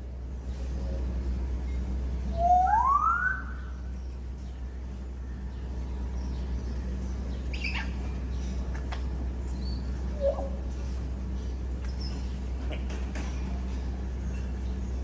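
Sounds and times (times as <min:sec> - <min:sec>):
parrot whistling: 0:02.4 - 0:03.6.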